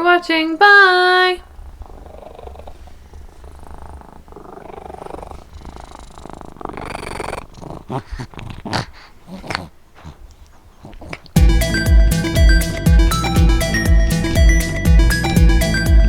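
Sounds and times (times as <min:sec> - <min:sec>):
cat purring: 0:00.0 - 0:11.4.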